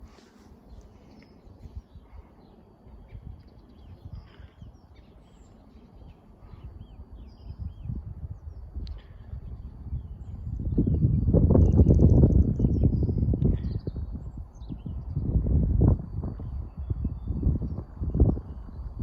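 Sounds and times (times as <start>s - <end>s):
wind rumble on microphone: 0.0s - 19.0s
birds chirping and calling: 0.2s - 9.3s.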